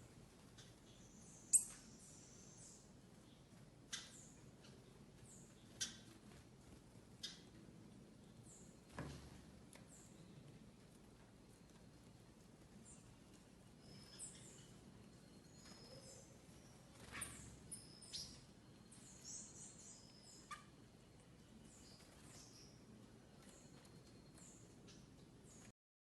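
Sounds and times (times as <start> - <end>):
small birds calling: 0.4 - 6.2, 12.8 - 25.7.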